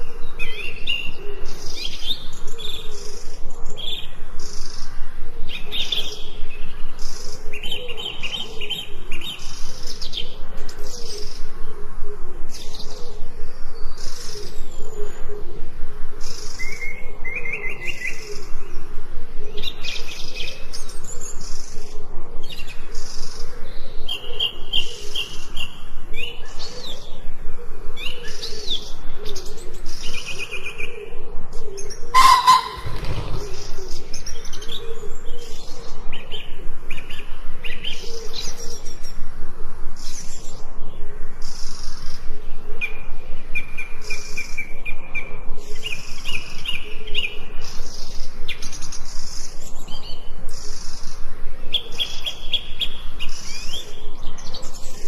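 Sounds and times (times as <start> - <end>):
songbirds chirping and singing: 0.0 - 39.2.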